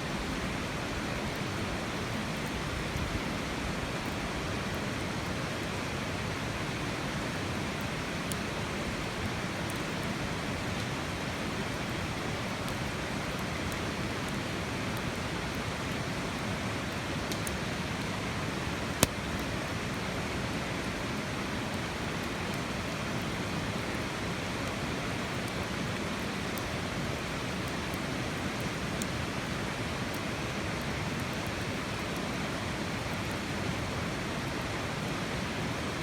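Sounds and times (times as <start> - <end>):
campfire crackling: 16.6 - 23.9
fire pop: 19.0 - 19.4.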